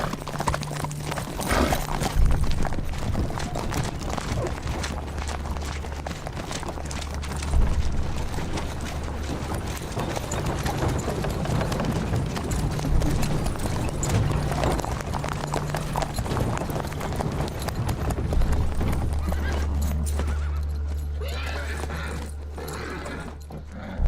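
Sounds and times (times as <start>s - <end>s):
horses' hooves clattering: 0.0s - 24.0s
horse whinnying: 1.4s - 2.0s, 19.2s - 24.0s.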